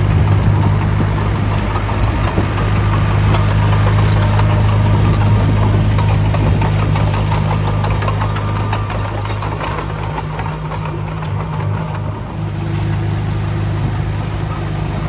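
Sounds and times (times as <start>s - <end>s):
diesel engine humming: 0.0s - 15.0s
small clicks and rattles: 0.0s - 15.0s.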